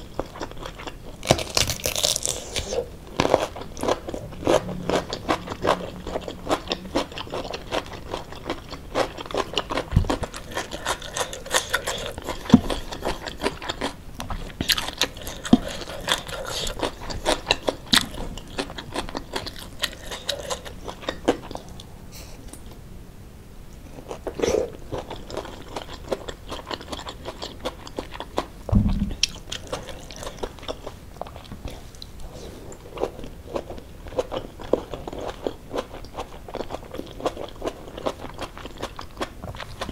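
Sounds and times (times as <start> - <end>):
chewing and crunching food: 0.0 - 21.9, 23.9 - 39.9
low knocks: 28.7 - 29.2.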